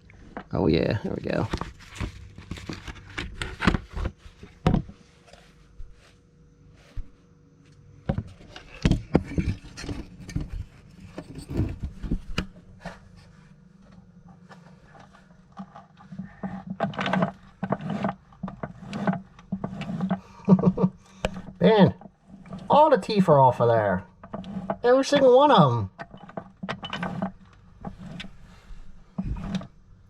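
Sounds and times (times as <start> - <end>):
metal scraping clicking and knocking: 14.9 - 23.0, 24.1 - 28.4, 29.2 - 29.7.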